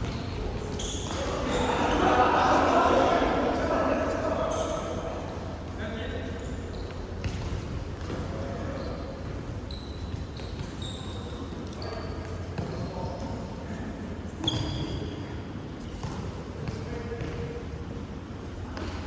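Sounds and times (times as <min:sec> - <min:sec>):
shoes squeaking on court floor: 0:00.0 - 0:02.0, 0:04.5 - 0:13.6, 0:14.4 - 0:19.0
players' voices: 0:00.3 - 0:07.3.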